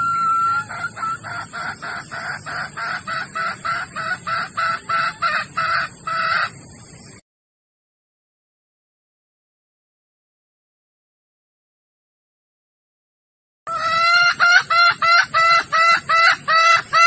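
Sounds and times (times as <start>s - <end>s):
hen calling: 0.0s - 6.6s, 13.7s - 17.0s
hen clucking: 0.0s - 7.0s, 13.7s - 17.0s.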